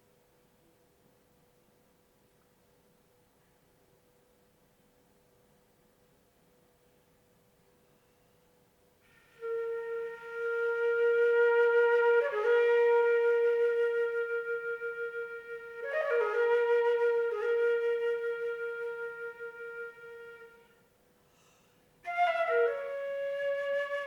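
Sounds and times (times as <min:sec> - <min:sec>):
flute playing long notes: 0:09.1 - 0:20.8, 0:22.0 - 0:24.0.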